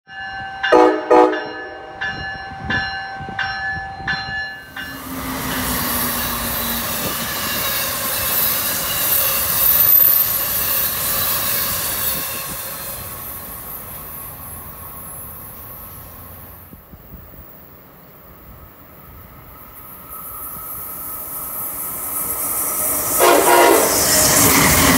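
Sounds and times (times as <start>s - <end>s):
train rushing past: 0.4s - 24.9s
train horn blasts: 0.7s - 2.0s, 23.1s - 24.2s.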